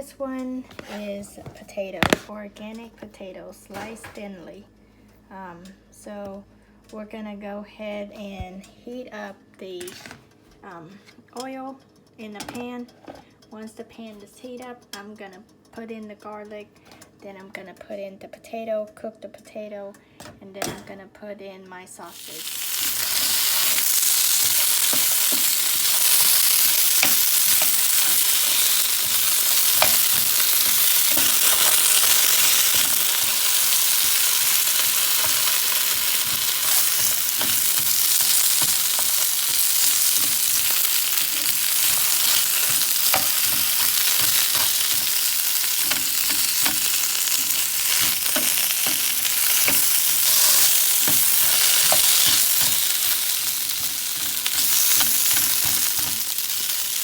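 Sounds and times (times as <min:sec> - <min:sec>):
food sizzling in oil: 0:22.1 - 0:57.0
stirring clicks: 0:22.4 - 0:57.0.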